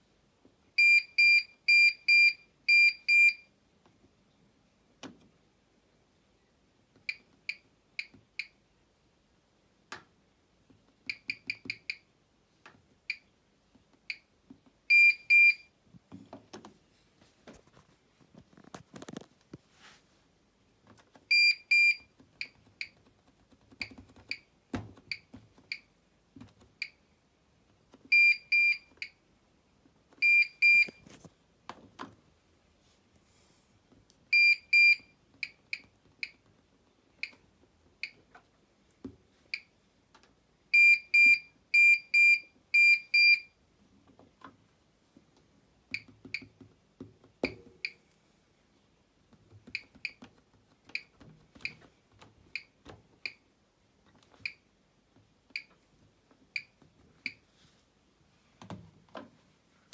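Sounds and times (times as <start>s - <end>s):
faint knocks and clicks: 16.0s - 16.8s.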